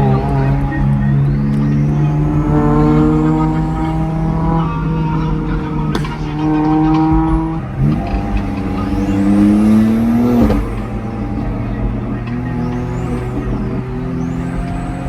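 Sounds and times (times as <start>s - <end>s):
car engine accelerating: 0.0s - 15.0s
gear change: 0.0s - 15.0s.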